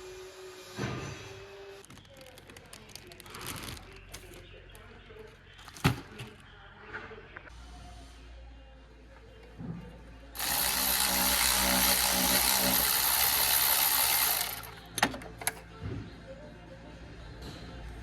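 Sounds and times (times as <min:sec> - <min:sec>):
power wrench running: 0:10.4 - 0:15.6.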